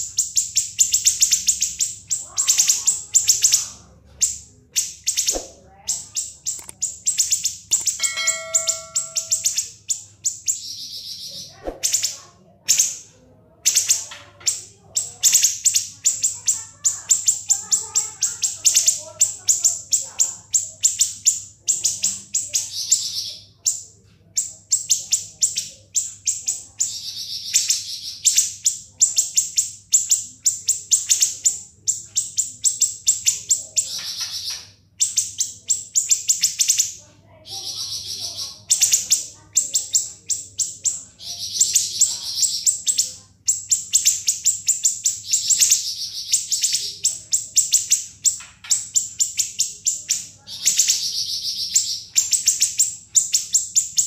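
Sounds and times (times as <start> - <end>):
bird singing shrill trills: 0.0 - 13.0, 24.7 - 54.0
buzzy bird note: 6.4 - 9.8.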